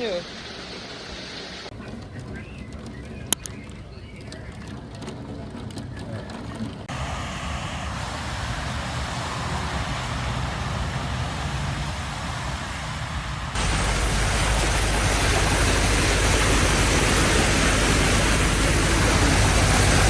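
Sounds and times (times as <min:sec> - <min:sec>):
low wind rumble: 0:00.2 - 0:20.0
heavy rain rushing: 0:06.9 - 0:20.0.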